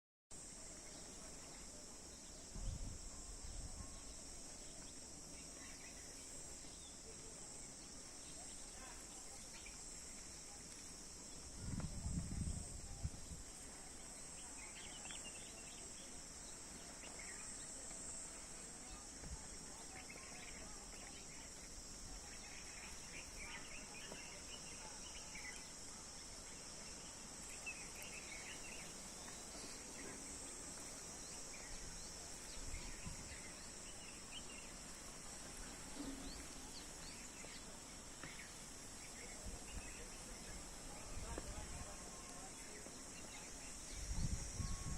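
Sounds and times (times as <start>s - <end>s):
insects droning: 0.3s - 44.9s
wind rumble on microphone: 2.5s - 4.1s, 11.4s - 13.6s, 31.8s - 33.5s, 43.8s - 44.9s.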